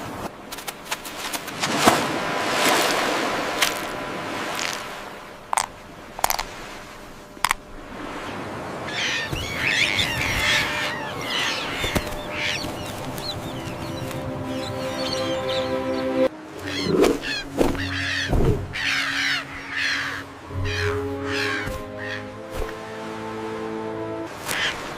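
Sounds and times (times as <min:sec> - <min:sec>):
noisy wash: 0:00.0 - 0:24.9
bird chattering squawks: 0:08.9 - 0:15.6, 0:16.6 - 0:22.3.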